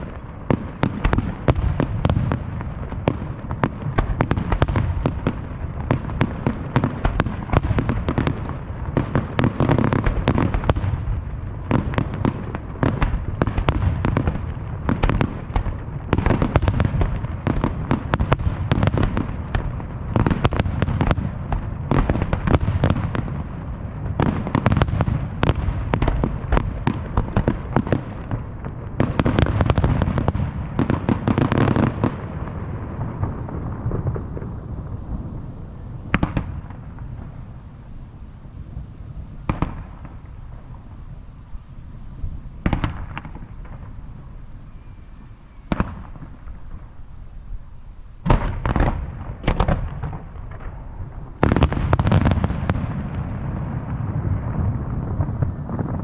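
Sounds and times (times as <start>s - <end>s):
fireworks bursting with sharp bangs: 0.0s - 56.0s
echoing rumble: 27.0s - 56.0s.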